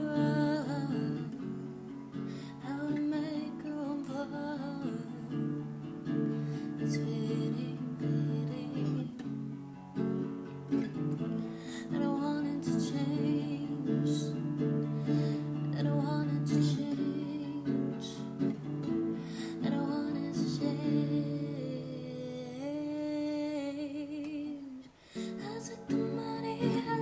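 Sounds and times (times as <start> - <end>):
acoustic guitar strumming: 0.0 - 22.8, 25.2 - 27.0.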